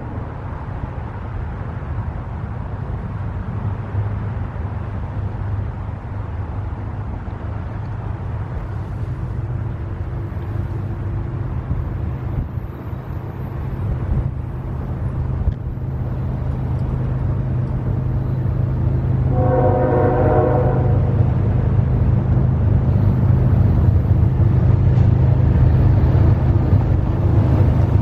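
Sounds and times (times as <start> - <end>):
train rumbling: 0.0 - 28.0
train horn blowing: 19.2 - 21.3.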